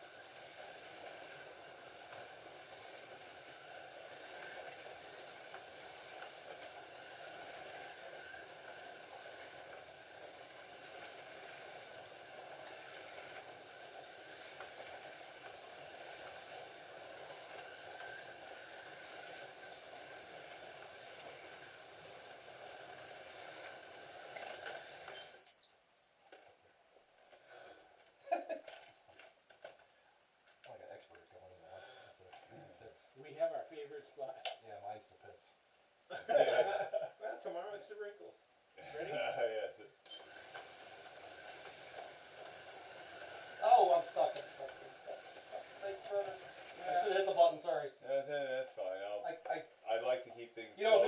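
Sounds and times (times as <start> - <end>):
slot cars whirring: 0.0 - 25.7, 40.1 - 48.0.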